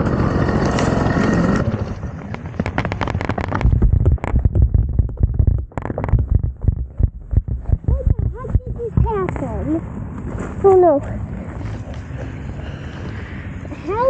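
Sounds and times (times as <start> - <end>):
two-stroke engine running: 0.0 - 9.2
knocks scrapes and thumps: 0.5 - 12.5.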